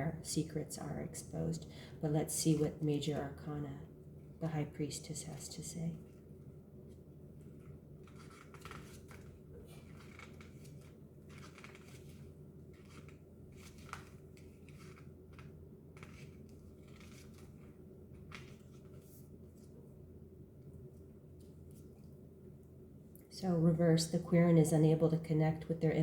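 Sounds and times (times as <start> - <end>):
faint low hum: 0.0 - 26.0
paper rustling and pages turning: 6.0 - 19.9.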